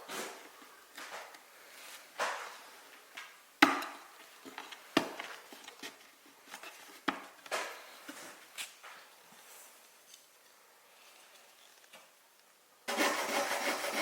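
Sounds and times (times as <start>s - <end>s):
sharp wooden knocks: 3.6s - 4.0s.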